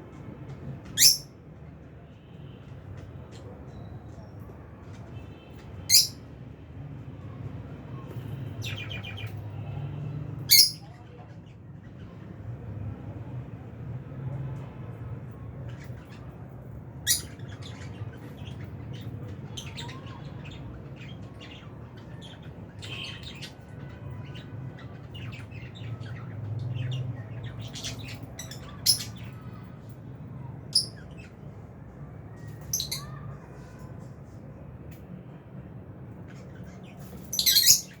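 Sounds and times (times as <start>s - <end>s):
birds chirping and squawking: 0.8s - 1.4s, 5.8s - 6.3s, 8.2s - 9.6s, 10.4s - 11.2s, 15.6s - 34.0s, 36.1s - 38.0s.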